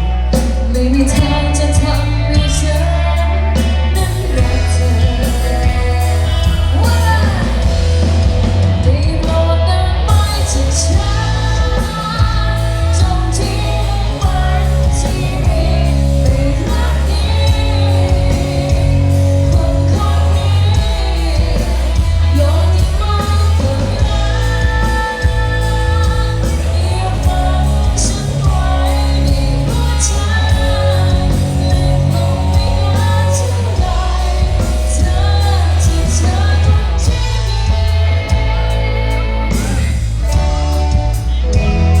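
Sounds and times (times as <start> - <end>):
heavy bass line: 0.0 - 42.0
live band music: 0.0 - 42.0
person singing: 0.0 - 42.0.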